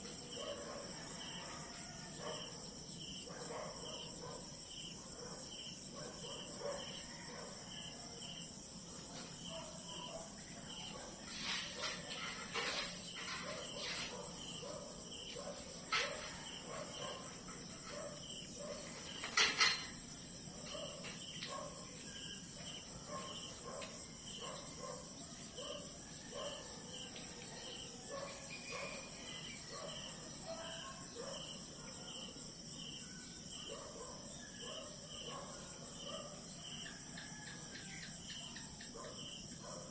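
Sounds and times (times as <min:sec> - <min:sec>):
crickets and insects chirping: 0:00.0 - 0:39.9.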